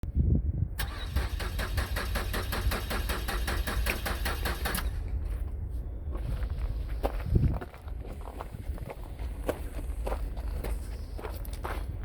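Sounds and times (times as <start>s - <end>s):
car engine cranking without starting: 0.8s - 5.1s.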